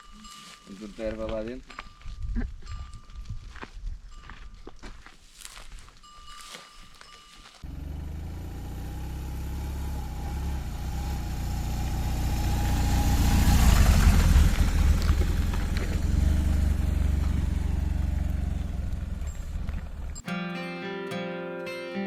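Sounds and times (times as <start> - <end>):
motorcycle engine running: 7.6 - 20.2.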